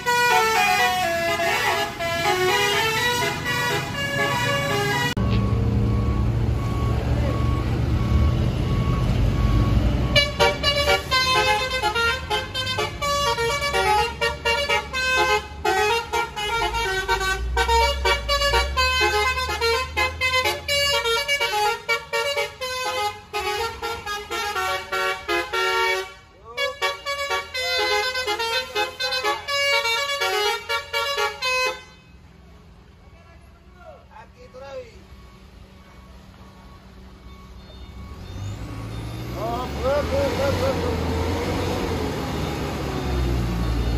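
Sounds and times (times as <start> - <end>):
bus horn playing a tune: 0.0 - 5.3, 9.4 - 32.3
low engine rumble: 0.0 - 20.4.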